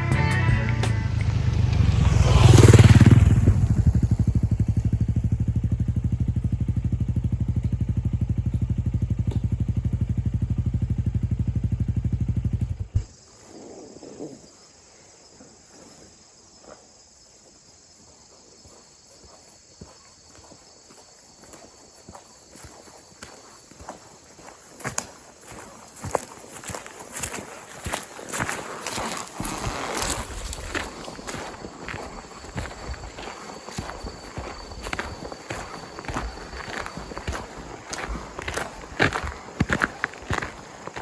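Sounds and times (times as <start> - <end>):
motorcycle engine revving: 0.0 - 13.1, 28.8 - 41.0
motorcycle engine idling: 0.1 - 13.2, 32.2 - 41.0.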